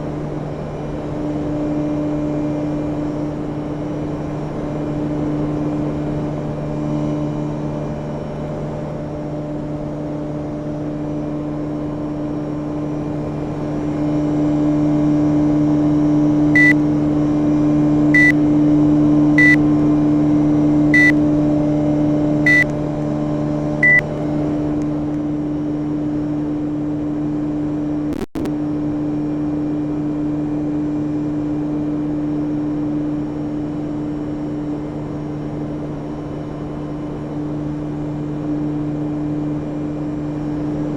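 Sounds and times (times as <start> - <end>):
air conditioner humming: 16.6 - 16.8, 19.4 - 19.6, 23.8 - 24.0
short high beeps: 16.6 - 16.8, 21.0 - 21.2, 22.5 - 22.7, 23.8 - 24.0.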